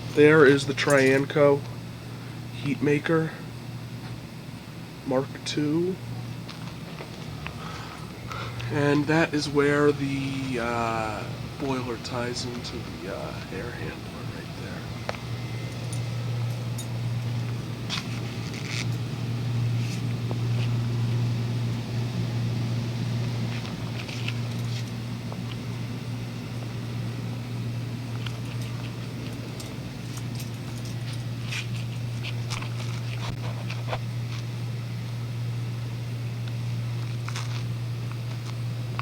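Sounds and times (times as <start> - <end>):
air conditioning hum: 0.0 - 39.0.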